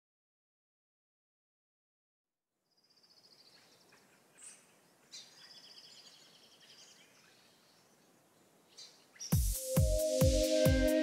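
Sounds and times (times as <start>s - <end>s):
songbirds trilling and calling: 2.8s - 9.4s
soft steady hiss: 2.8s - 11.0s.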